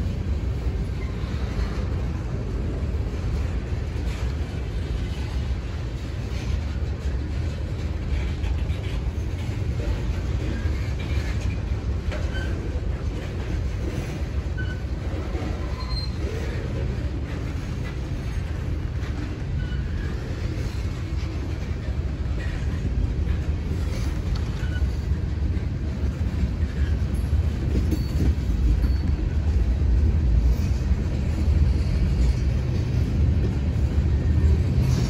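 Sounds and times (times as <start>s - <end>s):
freight train rumbling on rails: 0.0s - 35.0s
high wheel squeals: 14.5s - 16.4s.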